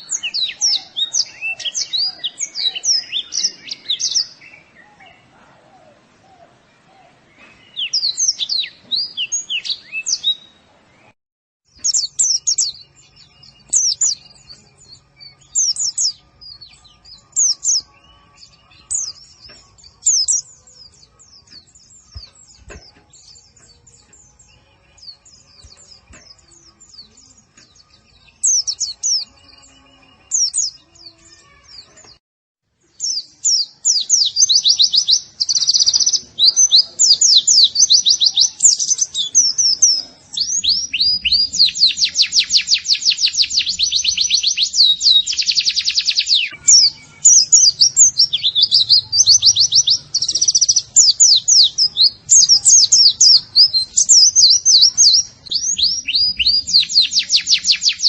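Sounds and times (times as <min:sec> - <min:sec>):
bird twittering chirps: 0:11.7 - 0:31.6, 0:33.0 - 0:58.0.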